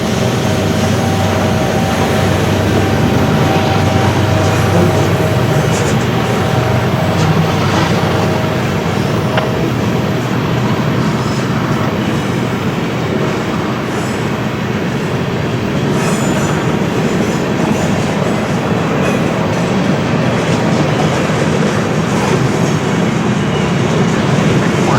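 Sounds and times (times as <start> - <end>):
faint high wheel squeals: 0.0 - 24.9
train wheels rumbling on rail: 0.0 - 24.9.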